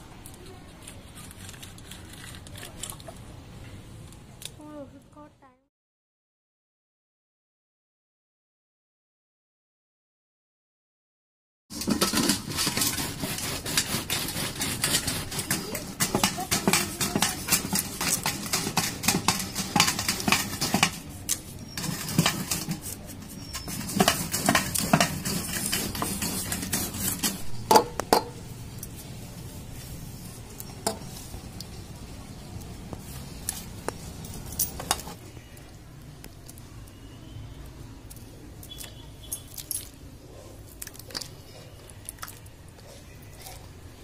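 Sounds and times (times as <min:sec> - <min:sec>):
gourd rasping on grater: 0:11.8 - 0:20.8, 0:21.8 - 0:27.4.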